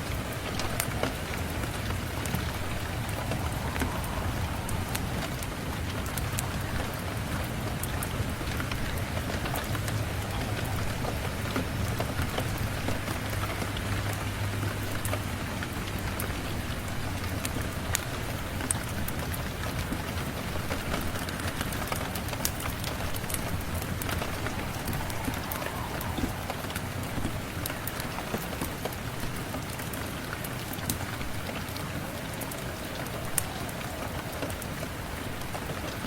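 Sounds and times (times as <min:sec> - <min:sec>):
steady rain falling: 0:00.0 - 0:36.0
low rumble: 0:00.6 - 0:13.2, 0:22.2 - 0:28.4.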